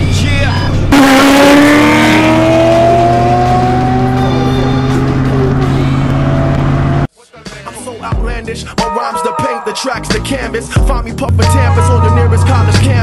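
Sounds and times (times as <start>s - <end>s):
music: 0.0s - 1.0s, 3.2s - 13.0s
car engine accelerating hard: 0.0s - 7.1s.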